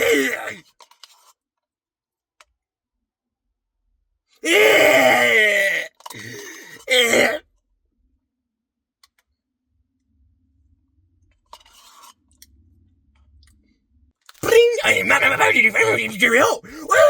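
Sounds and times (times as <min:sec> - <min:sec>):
wordless groan: 0:00.0 - 0:00.6, 0:04.4 - 0:07.4, 0:14.4 - 0:17.0.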